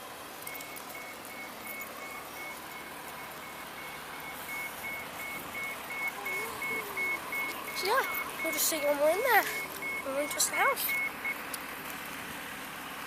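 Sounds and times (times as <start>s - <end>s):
high electronic beeps: 0.4s - 11.4s.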